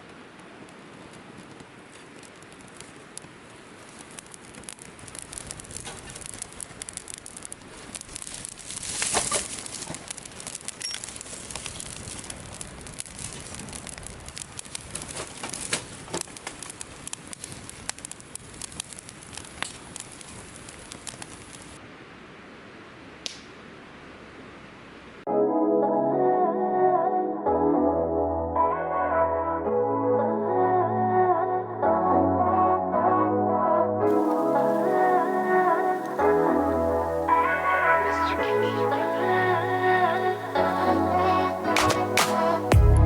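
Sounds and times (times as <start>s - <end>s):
wood fire crackling and popping: 0.0s - 21.8s, 23.2s - 23.6s, 34.1s - 43.0s.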